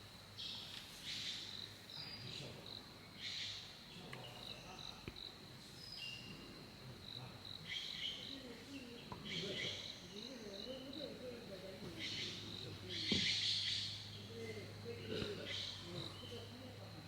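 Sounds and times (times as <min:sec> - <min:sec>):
faint murmur of voices: 0:03.9 - 0:17.0
birds chirping: 0:07.6 - 0:16.9.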